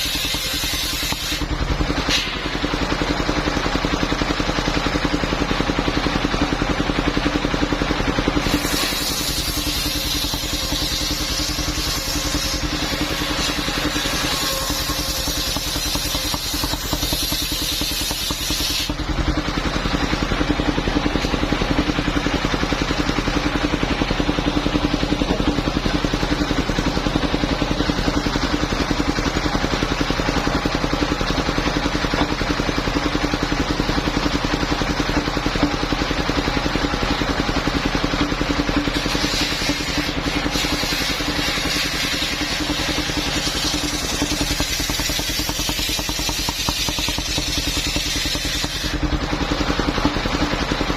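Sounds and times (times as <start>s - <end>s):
sawmill engine running: 0.0s - 50.9s.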